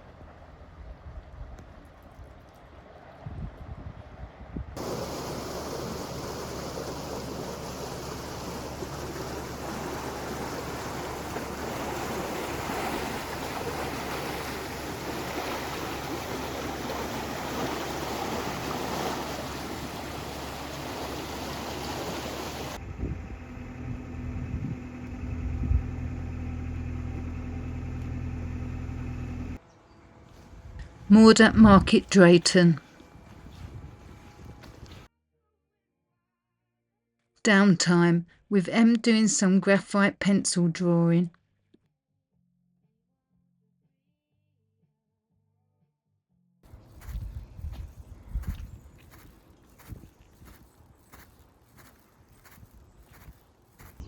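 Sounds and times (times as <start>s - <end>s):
diesel engine humming: 0.0s - 3.2s, 4.8s - 35.1s, 46.7s - 54.0s.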